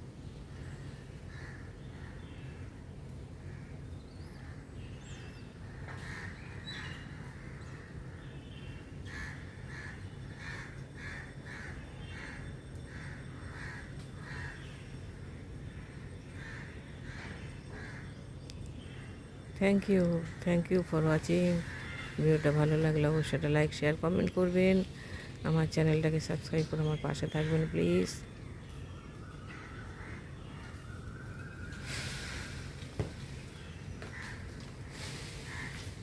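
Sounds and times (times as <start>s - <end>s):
low steady hum: 0.0s - 36.0s
bird harsh calls: 21.2s - 23.4s, 26.8s - 36.0s.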